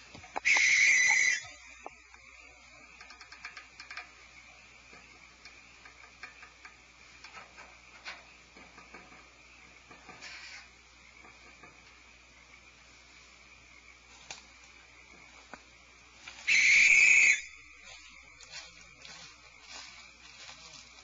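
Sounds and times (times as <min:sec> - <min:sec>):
faint steady high hiss: 0:00.0 - 0:21.0
faint clicks and scratches: 0:01.8 - 0:12.0
brief hiss: 0:10.2 - 0:10.7.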